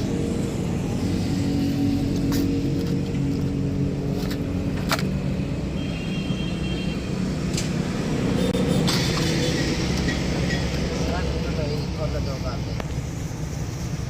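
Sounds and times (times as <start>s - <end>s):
engine humming steadily: 0.0s - 14.0s.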